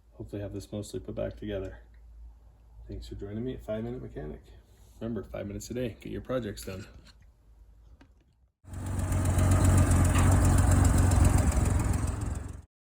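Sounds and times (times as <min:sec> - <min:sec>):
engine running: 0:08.7 - 0:12.7.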